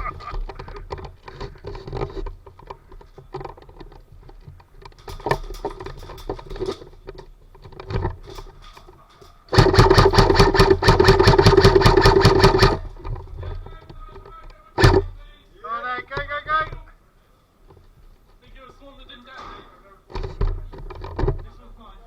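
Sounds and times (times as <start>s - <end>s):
clicks and knocks: 0.0s - 15.3s, 19.3s - 21.6s
airsoft gun rapid fire: 9.5s - 12.9s, 14.8s - 15.2s
gun motor whine: 9.6s - 12.9s.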